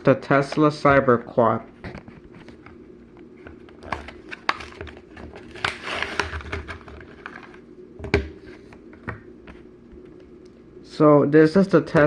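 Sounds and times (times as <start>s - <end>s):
packaging crinkling and rustling: 3.5s - 7.6s.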